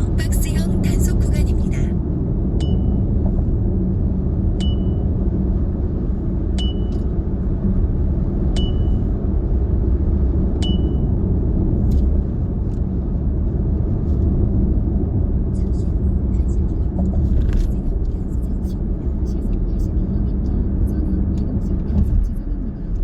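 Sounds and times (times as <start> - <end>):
car cabin road and engine rumble: 0.0 - 23.0
high ringing ding: 10.6 - 11.1.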